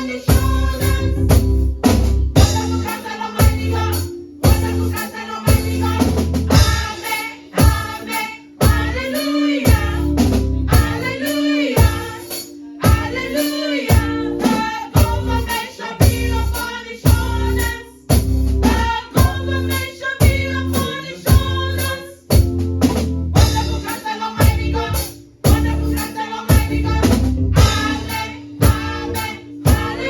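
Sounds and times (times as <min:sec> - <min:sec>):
choir singing: 0:00.0 - 0:01.2, 0:02.4 - 0:10.1, 0:10.7 - 0:17.9, 0:23.5 - 0:30.0
tambourine: 0:00.0 - 0:22.8, 0:23.4 - 0:30.0
drum kit steady beat: 0:00.0 - 0:30.0.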